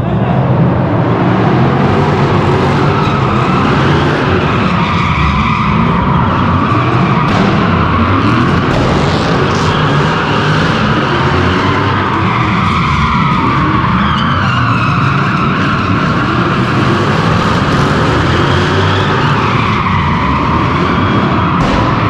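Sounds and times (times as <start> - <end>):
tyres squealing and skidding: 0.0 - 22.0
car engine revving hard: 5.8 - 14.0.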